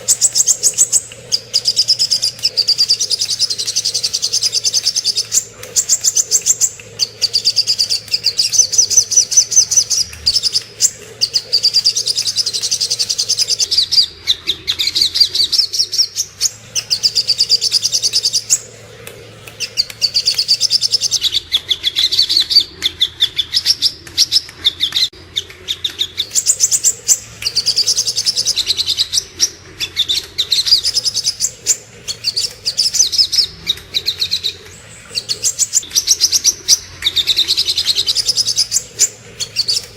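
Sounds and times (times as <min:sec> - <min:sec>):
bird singing rapid high notes: 0:00.0 - 0:14.1, 0:19.6 - 0:21.5, 0:37.8 - 0:39.9.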